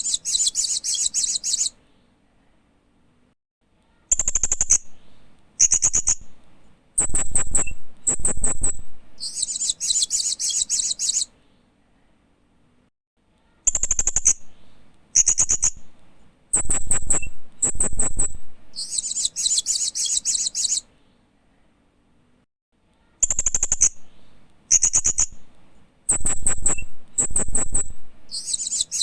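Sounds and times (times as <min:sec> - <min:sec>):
parrot high-pitched chirps: 0:00.0 - 0:01.8, 0:07.0 - 0:11.3, 0:13.6 - 0:14.5, 0:16.6 - 0:20.9, 0:26.1 - 0:29.0.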